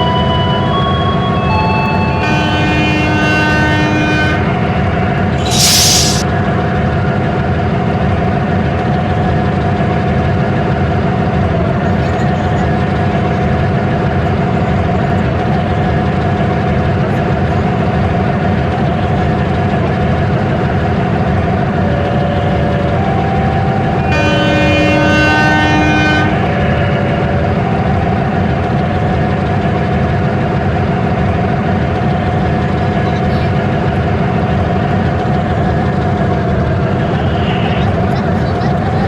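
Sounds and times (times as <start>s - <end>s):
train engine rumbling: 0.0s - 39.0s
train horn: 1.4s - 6.2s, 21.8s - 28.2s.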